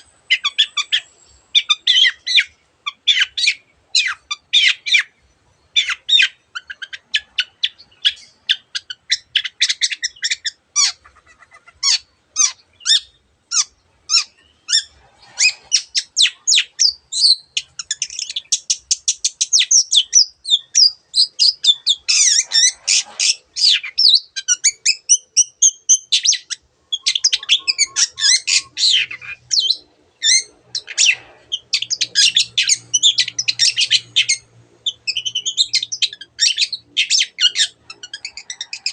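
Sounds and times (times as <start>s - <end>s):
bird singing chattering song: 0.0s - 38.9s.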